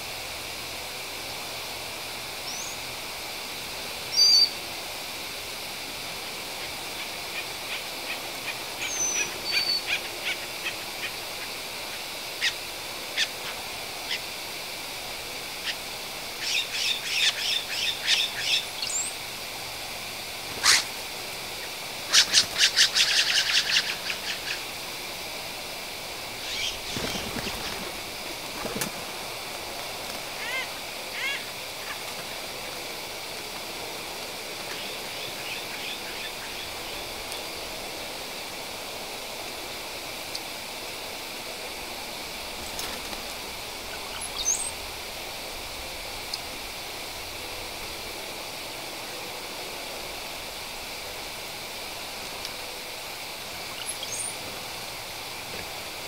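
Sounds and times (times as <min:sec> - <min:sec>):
steady background hiss: 0:00.0 - 0:56.0
birds chirping and calling: 0:08.1 - 0:11.5, 0:16.4 - 0:19.2, 0:21.6 - 0:24.6, 0:26.4 - 0:27.9, 0:30.4 - 0:32.1, 0:34.7 - 0:37.1, 0:43.9 - 0:44.8
rapid bird chattering: 0:21.6 - 0:24.7, 0:26.4 - 0:27.8, 0:30.4 - 0:32.1.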